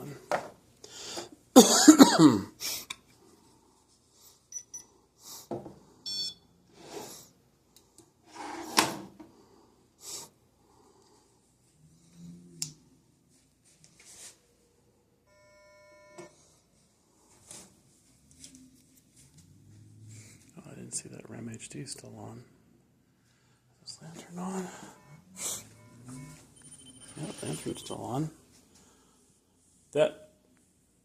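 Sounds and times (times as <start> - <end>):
steady beep tone: 4.5 - 4.9, 6.0 - 6.5, 24.6 - 28.1
electronic beeps: 6.1 - 6.4, 24.9 - 28.0.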